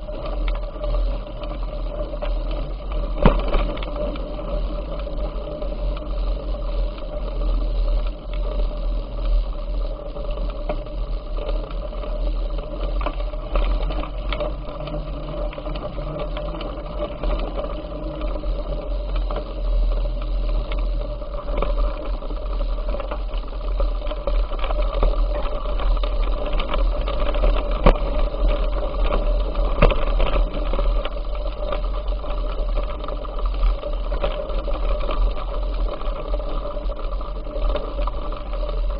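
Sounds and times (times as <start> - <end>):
bicycle rattles and clicks: 0.0 - 38.9
wind rumble on microphone: 0.0 - 38.9.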